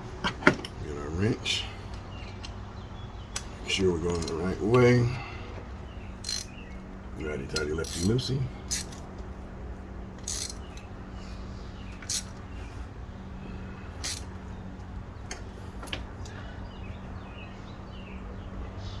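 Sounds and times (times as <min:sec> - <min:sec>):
steady low hum: 0:00.0 - 0:19.0
socket wrench clicks: 0:06.2 - 0:06.5, 0:08.7 - 0:09.0, 0:10.2 - 0:10.9, 0:12.0 - 0:12.3, 0:14.0 - 0:14.3.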